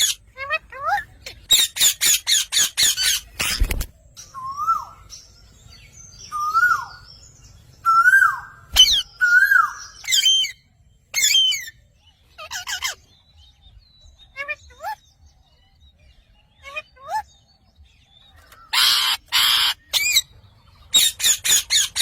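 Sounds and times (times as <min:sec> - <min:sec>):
parrot screeching: 0:00.0 - 0:03.2, 0:11.2 - 0:11.7, 0:12.4 - 0:13.0, 0:18.7 - 0:20.2, 0:20.9 - 0:22.0.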